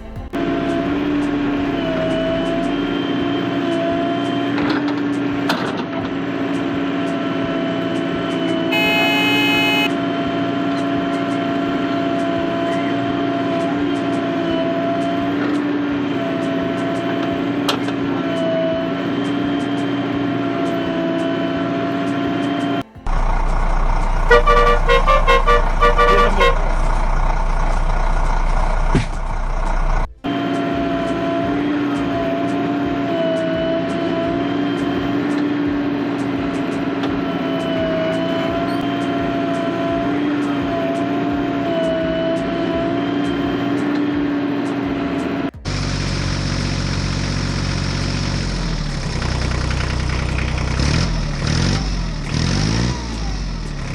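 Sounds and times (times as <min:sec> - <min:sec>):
droning whine: 0:00.0 - 0:21.4, 0:22.0 - 0:45.0
engine idling and revving: 0:00.0 - 0:53.9
noisy hum: 0:08.7 - 0:10.1
vehicle horn short beeps: 0:08.7 - 0:10.1, 0:23.1 - 0:27.0.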